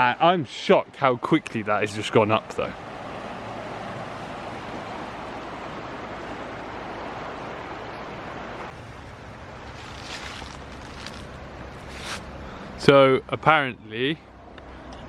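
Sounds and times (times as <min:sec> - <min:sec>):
fast-running river rushing: 0:01.4 - 0:12.9.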